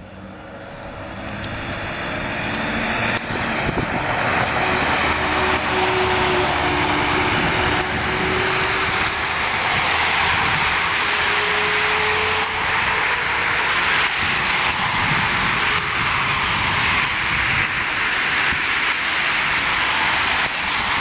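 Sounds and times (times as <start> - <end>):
truck diesel engine running: 0.0 - 14.3.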